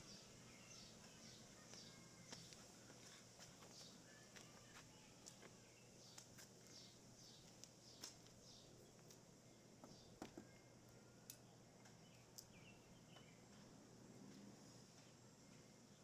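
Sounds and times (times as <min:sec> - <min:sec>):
small birds calling: 0:00.0 - 0:09.2, 0:11.8 - 0:13.6.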